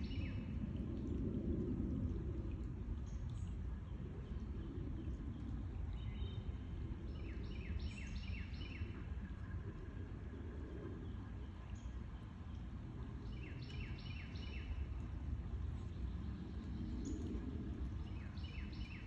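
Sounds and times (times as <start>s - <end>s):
songbird singing: 0.0s - 0.5s, 7.1s - 8.9s, 13.2s - 14.8s, 18.0s - 19.0s
low outdoor rumble: 0.0s - 19.0s.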